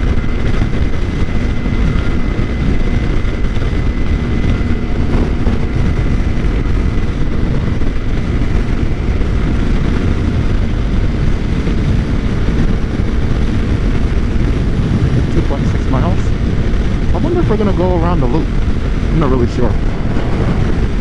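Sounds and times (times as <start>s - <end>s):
wind rushing over microphone: 0.0s - 21.0s
faint whine: 18.2s - 21.0s.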